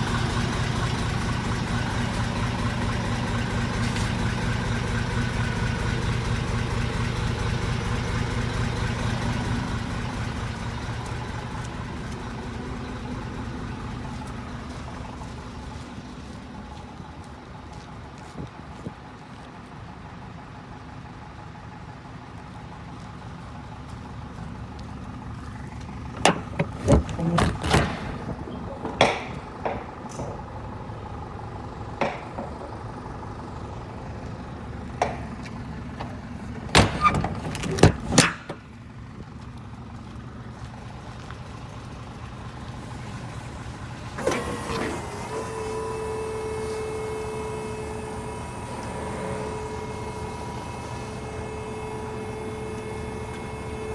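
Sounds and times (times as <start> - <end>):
diesel truck engine idling: 0.0 - 53.9
sharp knocks and clunks: 26.1 - 30.5, 32.0 - 32.8, 35.0 - 38.7.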